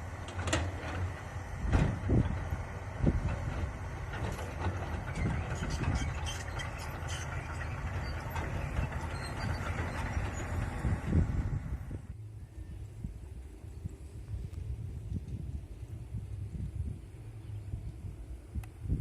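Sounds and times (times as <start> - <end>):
excavator diesel engine running: 0.0 - 12.2.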